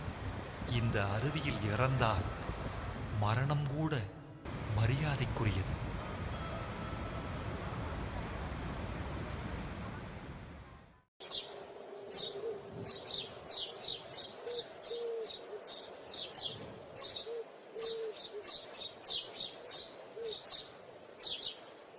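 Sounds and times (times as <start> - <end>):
birds chirping: 11.2 - 21.9.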